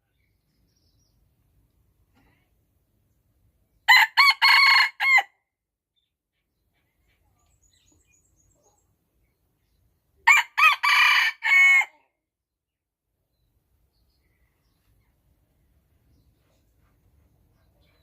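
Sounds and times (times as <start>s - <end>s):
rooster crowing: 3.9s - 5.3s, 10.2s - 12.0s.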